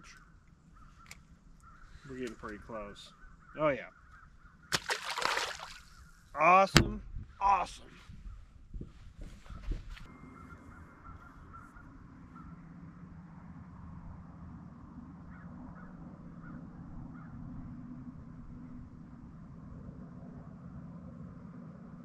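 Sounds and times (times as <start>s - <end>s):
faint bird calls: 0.0s - 6.3s, 9.2s - 12.8s, 15.2s - 17.5s
steady low hum: 5.5s - 22.0s.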